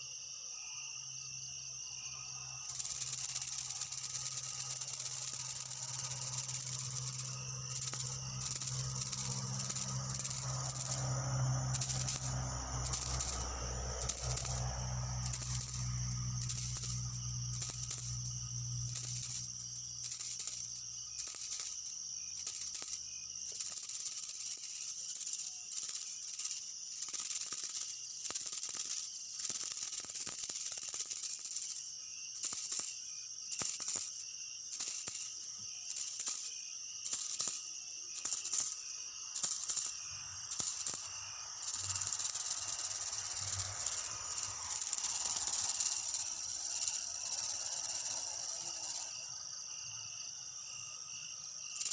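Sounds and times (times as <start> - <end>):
insect chorus: 0.0 - 51.9.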